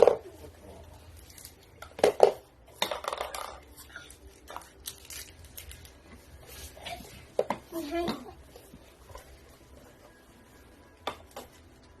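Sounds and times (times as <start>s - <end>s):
small hard objects clattering: 1.2s - 6.0s.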